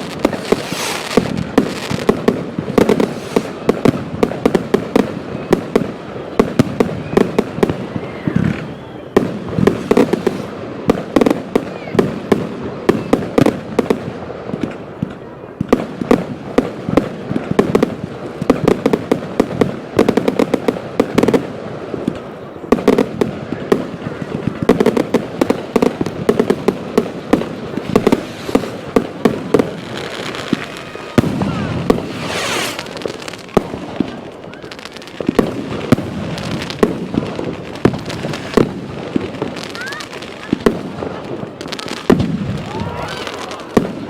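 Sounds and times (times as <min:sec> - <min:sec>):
rising firework whistle: 0:00.0 - 0:12.1, 0:27.4 - 0:35.2, 0:41.6 - 0:44.0
fireworks bangs and crackles: 0:00.0 - 0:44.0.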